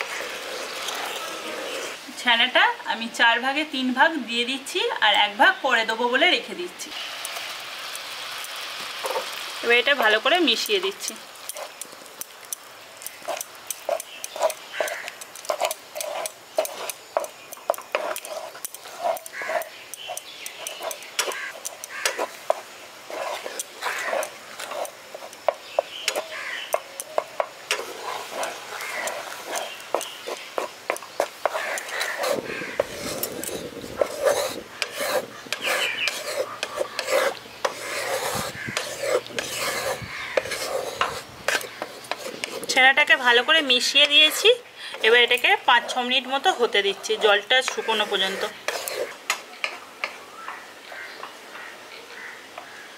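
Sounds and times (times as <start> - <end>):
metal spatula scraping a pan: 0.0 - 2.0, 13.0 - 50.2.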